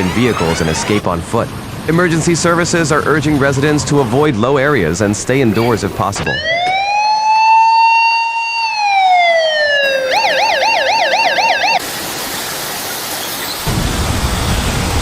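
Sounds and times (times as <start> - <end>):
electronic siren wailing and yelping: 6.3 - 11.8.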